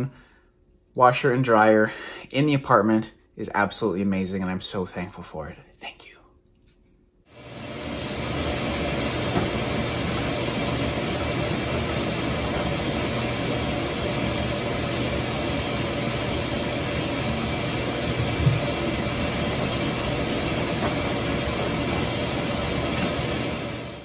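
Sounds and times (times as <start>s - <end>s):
washing machine running: 7.3s - 24.0s.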